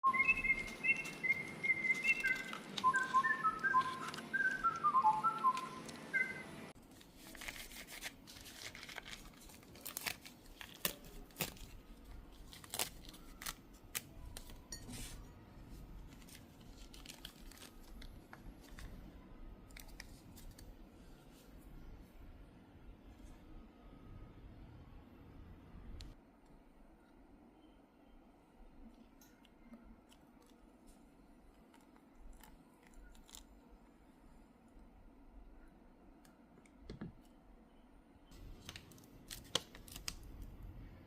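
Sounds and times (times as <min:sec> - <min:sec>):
small objects being handled: 0:00.1 - 0:21.7.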